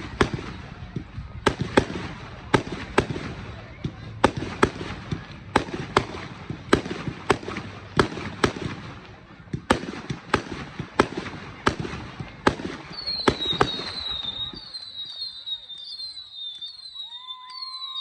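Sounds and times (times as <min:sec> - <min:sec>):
firework bangs: 0:00.0 - 0:17.9
firework whistles sweeping downward: 0:12.9 - 0:18.0.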